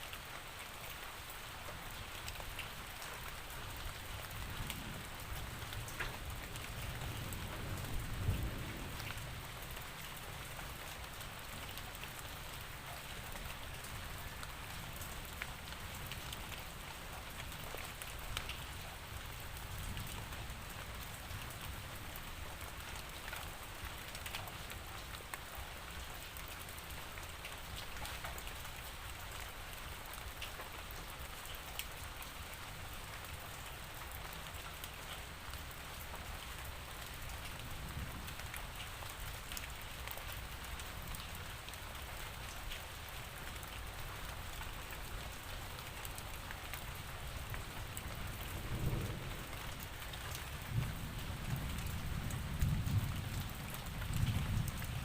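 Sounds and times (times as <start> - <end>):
steady rain falling: 0.0 - 55.0
raindrops ticking: 0.1 - 32.6
low rumbles of thunder: 4.3 - 10.0, 47.9 - 55.0.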